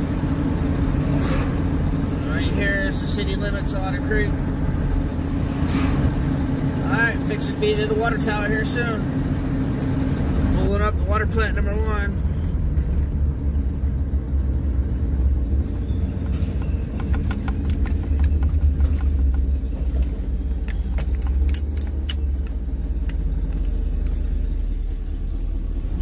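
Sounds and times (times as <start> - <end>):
truck engine rumble: 0.0 - 26.0
clicking and rattling: 15.5 - 24.2.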